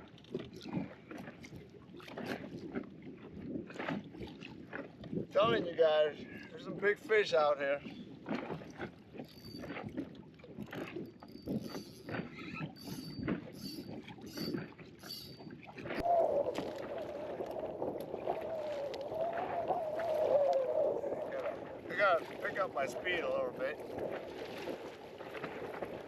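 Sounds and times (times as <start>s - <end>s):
knocks and water splashes: 0.0s - 20.4s, 21.1s - 26.0s
faint high squeak: 11.3s - 15.5s.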